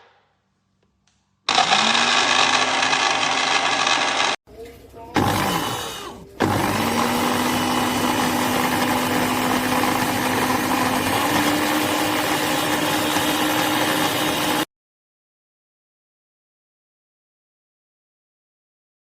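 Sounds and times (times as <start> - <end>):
blender motor humming: 1.5 - 4.4, 5.2 - 14.7.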